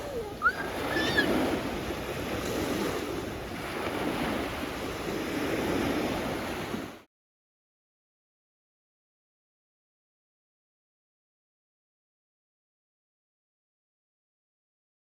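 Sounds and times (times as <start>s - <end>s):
high rising calls: 0.0s - 1.4s
sea waves washing on shore: 0.0s - 7.1s.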